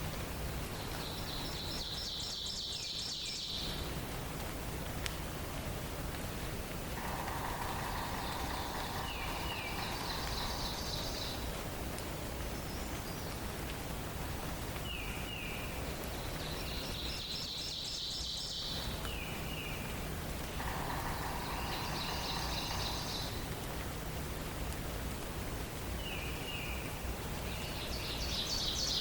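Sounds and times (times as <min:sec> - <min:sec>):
background hiss: 0:00.0 - 0:29.0
songbirds singing: 0:00.6 - 0:04.1, 0:07.0 - 0:13.7, 0:14.8 - 0:23.8, 0:25.9 - 0:29.0
buzzy bird trills: 0:07.0 - 0:11.4, 0:20.6 - 0:23.5.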